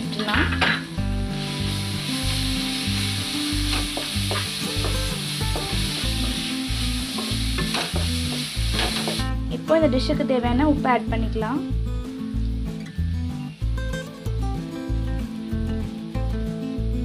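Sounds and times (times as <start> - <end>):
food sizzling in hot oil: 0.0 - 9.4, 12.0 - 16.9.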